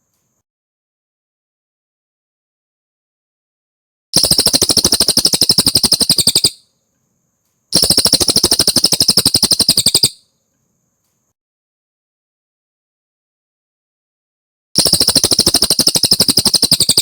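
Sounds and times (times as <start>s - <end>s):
songbird singing rapid trills: 4.2s - 6.6s, 7.8s - 10.2s, 14.8s - 17.0s.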